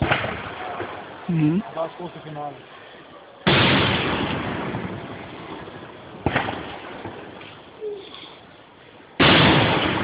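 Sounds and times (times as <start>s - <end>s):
firework shells bursting: 3.4s - 10.0s.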